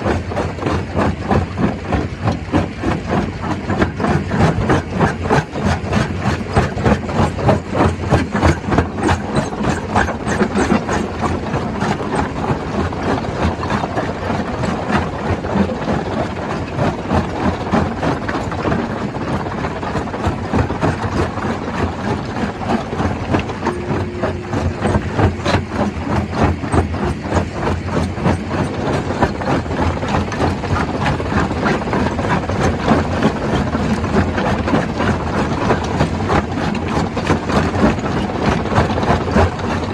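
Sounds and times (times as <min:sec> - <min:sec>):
stone crusher drone: 0:22.9 - 0:26.8.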